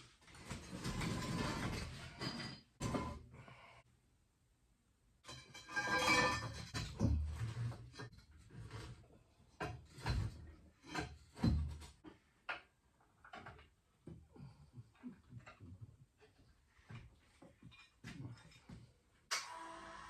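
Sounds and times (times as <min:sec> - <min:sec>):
hard objects knocking and clunking: 0:06.2 - 0:14.3.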